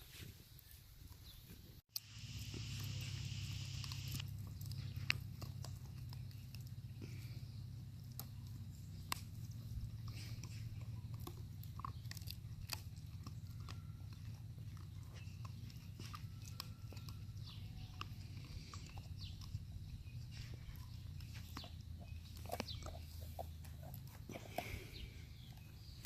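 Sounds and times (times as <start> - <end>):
puppies chewing and gnawing: 1.9 - 26.0
steady low hum: 1.9 - 26.0
small clicks: 2.0 - 6.7.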